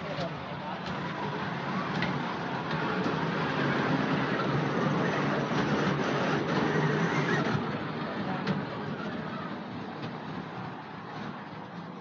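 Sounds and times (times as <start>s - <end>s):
toy train rumbling and rattling: 0.8s - 12.0s.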